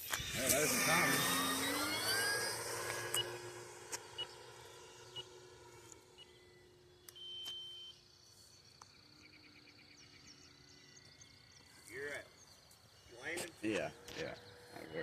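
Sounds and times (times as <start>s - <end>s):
faint steady hum: 0.0s - 15.0s
high-pitched beep: 0.2s - 6.6s.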